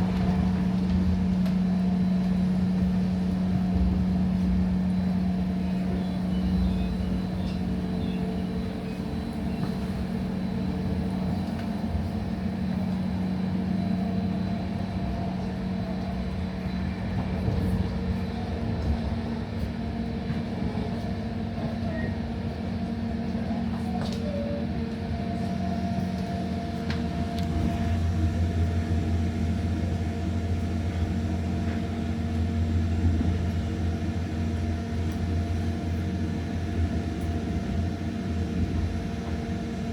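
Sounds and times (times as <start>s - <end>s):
train rumbling hum: 0.0s - 39.9s
light clicks from track: 23.7s - 24.4s.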